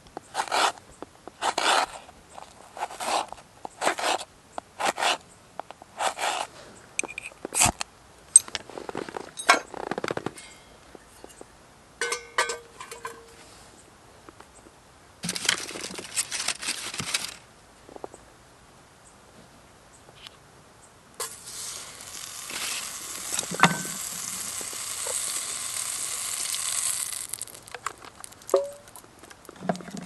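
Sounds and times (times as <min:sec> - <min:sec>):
scraping and rustling gear: 0:00.3 - 0:05.2, 0:06.0 - 0:07.7, 0:08.4 - 0:11.5, 0:15.2 - 0:17.4.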